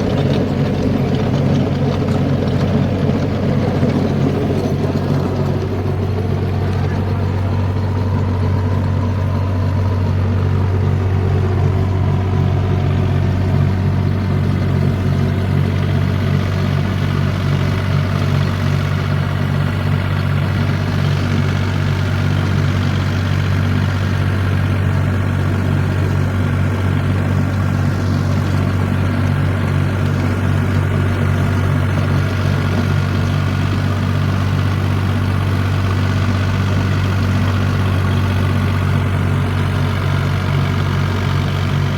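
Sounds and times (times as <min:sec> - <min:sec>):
tractor diesel engine idling: 0:00.0 - 0:41.9.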